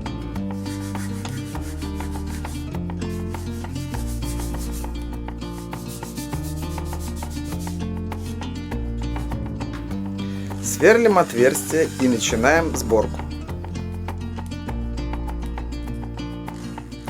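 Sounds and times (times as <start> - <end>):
background music: 0.0 - 17.0
sandpaper rubbing on wood: 0.4 - 8.4, 10.4 - 13.4.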